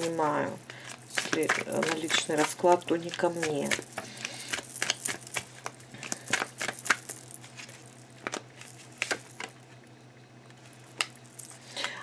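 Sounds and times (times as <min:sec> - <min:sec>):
small objects clicking and clinking: 0:00.0 - 0:08.0.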